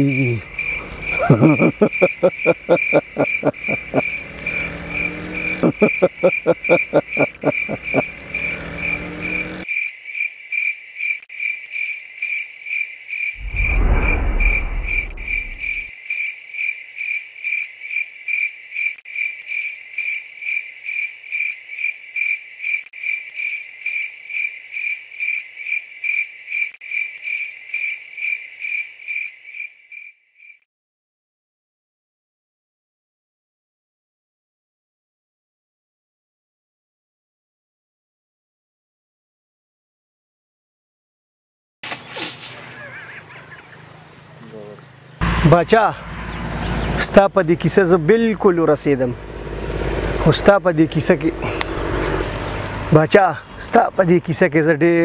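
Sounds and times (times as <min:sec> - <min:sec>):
crickets chirping: 0:00.0 - 0:30.6
low rapid rattling: 0:13.4 - 0:15.9
low rumble: 0:13.4 - 0:15.9.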